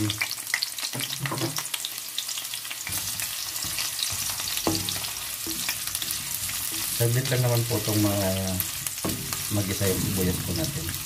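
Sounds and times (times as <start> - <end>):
onion sizzling in hot oil: 0.0 - 11.0
spatula stirring in a pan: 2.4 - 11.0.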